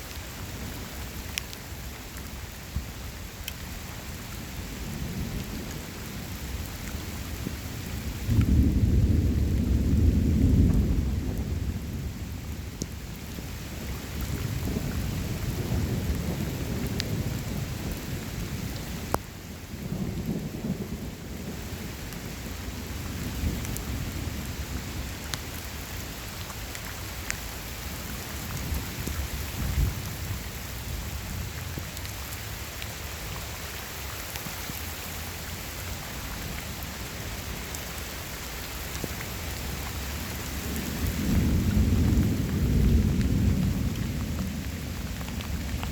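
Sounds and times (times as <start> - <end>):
steady rain: 0.0 - 45.9
thunder rumbling: 7.0 - 12.6, 39.6 - 45.9.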